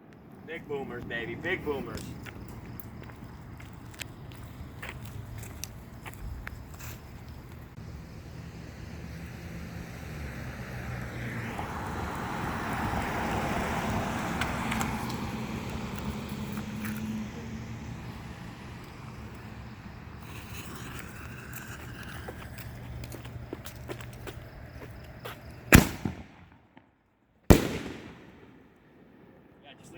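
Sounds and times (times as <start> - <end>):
car driving past: 8.1 - 22.4
faint sharp cracks: 27.5 - 29.3.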